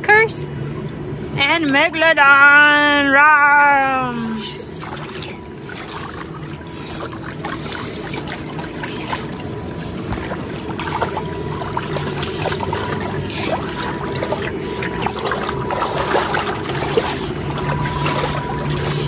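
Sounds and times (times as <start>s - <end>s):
low steady hum: 0.0s - 19.0s
water running and splashing: 4.2s - 19.0s.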